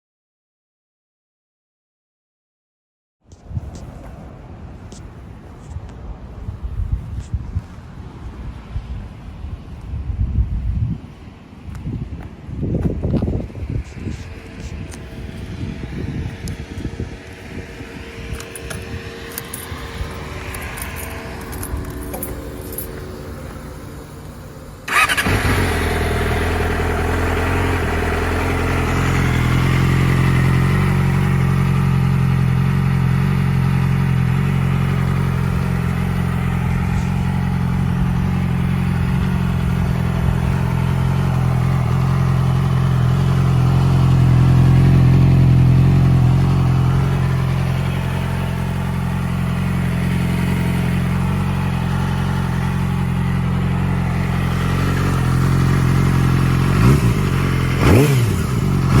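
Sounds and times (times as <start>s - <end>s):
motorcycle engine starting and idling: 12.9s - 59.0s.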